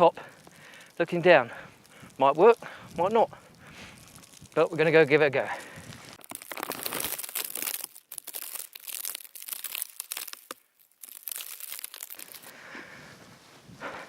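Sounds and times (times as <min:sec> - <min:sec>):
footsteps crunching through snow: 0:09.0 - 0:14.0.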